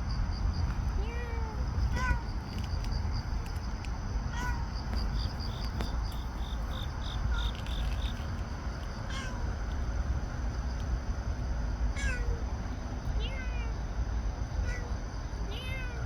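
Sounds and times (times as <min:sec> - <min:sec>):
steady low rumble: 0:00.0 - 0:16.0
cat meowing: 0:01.0 - 0:02.2, 0:04.3 - 0:04.6, 0:09.1 - 0:09.5, 0:12.0 - 0:12.4, 0:13.2 - 0:13.8, 0:14.6 - 0:16.0.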